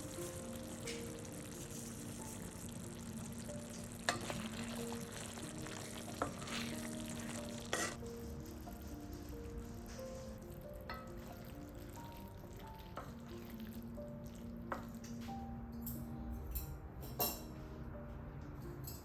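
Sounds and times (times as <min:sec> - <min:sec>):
food sizzling in a pan: 0:00.0 - 0:15.2.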